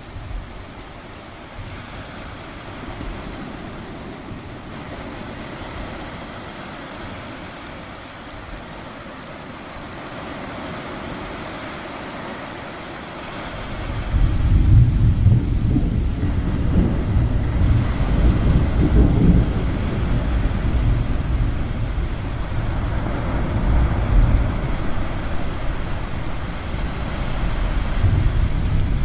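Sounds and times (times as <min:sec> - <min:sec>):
ocean waves: 0:00.0 - 0:29.0
low rumble of thunder: 0:13.6 - 0:29.0.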